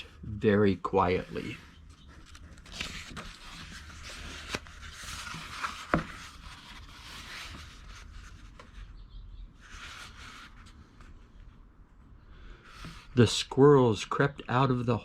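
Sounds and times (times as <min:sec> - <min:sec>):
book pages rustling: 0:01.3 - 0:08.9, 0:09.6 - 0:11.6.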